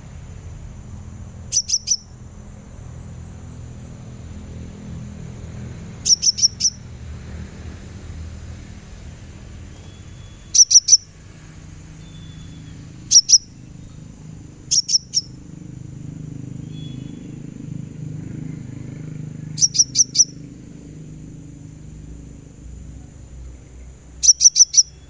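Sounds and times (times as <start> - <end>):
bird giving high chirps: 1.3 - 2.4, 5.6 - 7.0, 9.7 - 20.8, 24.2 - 25.0.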